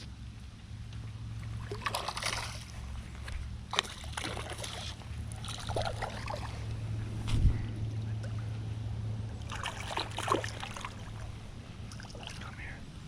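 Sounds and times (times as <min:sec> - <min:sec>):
steady low hum: 0:00.0 - 0:13.0
water sloshing and splashing: 0:00.9 - 0:07.5, 0:09.3 - 0:12.8.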